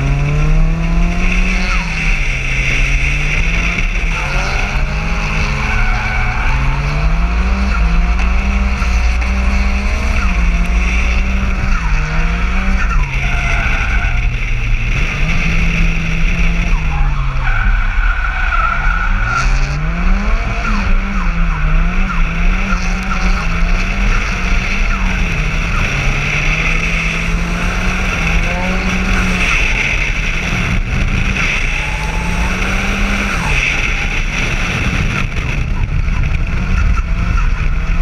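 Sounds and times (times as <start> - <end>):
car engine revving hard: 0.0 - 38.0
wind rumble on microphone: 19.5 - 38.0.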